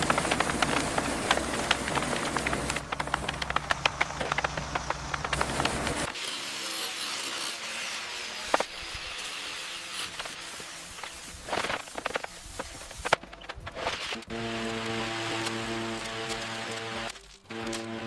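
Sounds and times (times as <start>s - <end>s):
taps and clicks: 0.0s - 6.1s
steady hiss: 8.2s - 13.2s.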